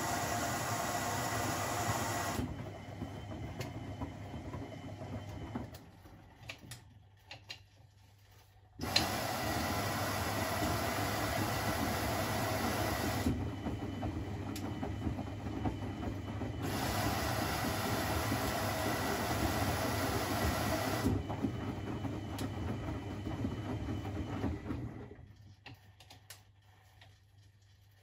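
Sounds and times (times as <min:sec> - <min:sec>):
washing machine drum turning: 0:08.8 - 0:25.2.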